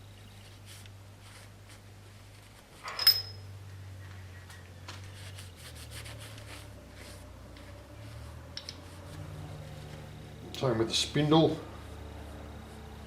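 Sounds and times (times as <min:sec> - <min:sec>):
low steady hum: 0:00.0 - 0:13.0
metal parts clinking: 0:02.8 - 0:03.5
handling clicks and rustles: 0:04.5 - 0:10.7.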